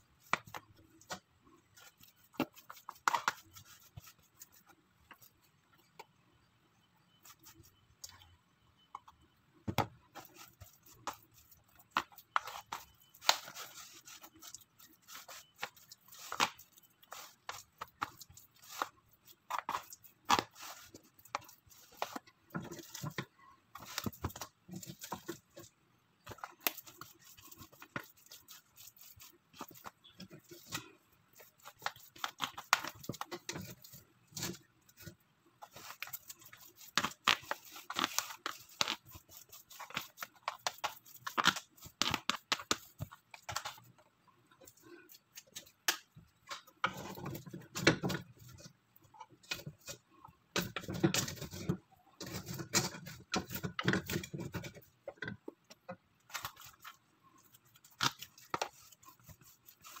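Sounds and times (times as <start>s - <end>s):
spoon scraping plastic tray: 50.6s - 55.2s.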